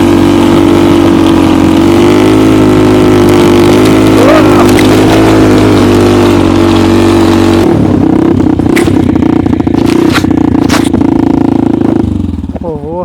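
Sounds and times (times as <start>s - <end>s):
snowmobile engine running: 0.0s - 13.0s
broad rushing noise: 1.8s - 7.7s.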